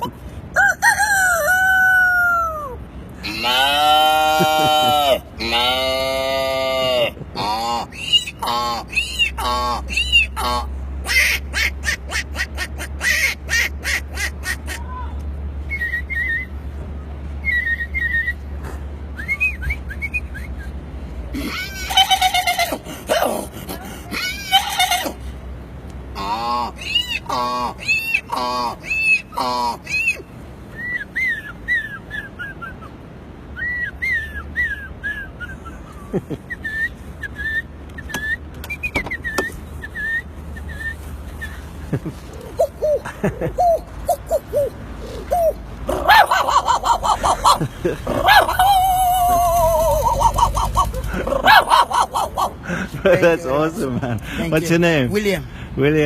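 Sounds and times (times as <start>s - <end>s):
man imitating animal calls: 0.0s - 15.0s, 21.4s - 25.2s, 26.1s - 30.2s, 42.3s - 53.8s
whistled bird-like calls: 33.6s - 35.8s, 36.5s - 41.6s.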